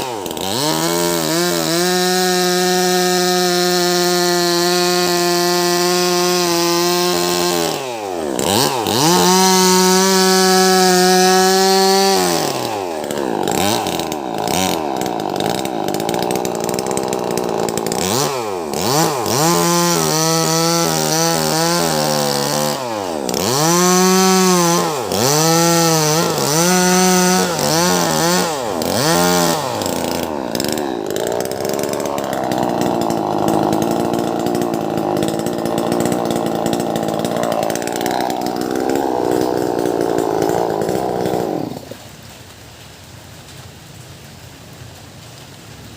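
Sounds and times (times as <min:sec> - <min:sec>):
chainsaw cutting through log: 0:00.0 - 0:42.2.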